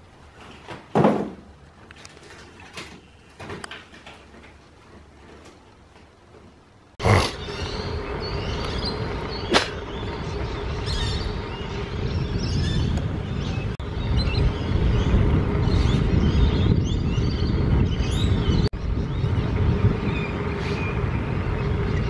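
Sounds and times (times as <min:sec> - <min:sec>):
outdoor rumble: 0:00.0 - 0:22.0
small birds chirping: 0:07.0 - 0:22.0.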